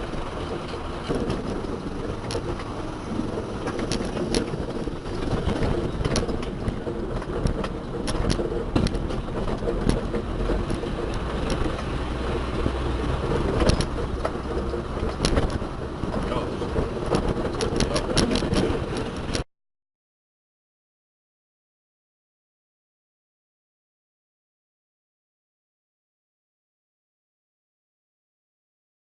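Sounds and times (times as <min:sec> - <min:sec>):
motor vehicle humming: 0:00.0 - 0:19.5
short clicks and rattles: 0:00.3 - 0:19.4.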